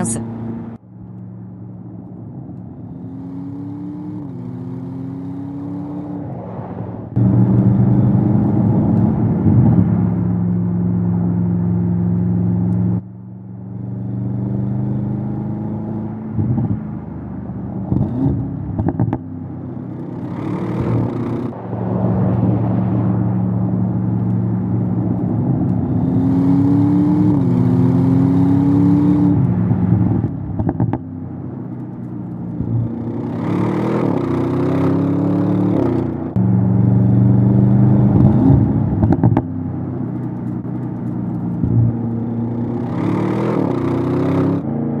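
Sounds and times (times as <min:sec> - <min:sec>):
car engine and exhaust droning: 0:00.0 - 0:45.0.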